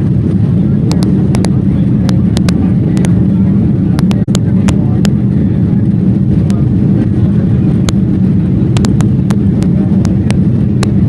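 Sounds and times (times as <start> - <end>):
sharp clicks: 8.8 - 11.0.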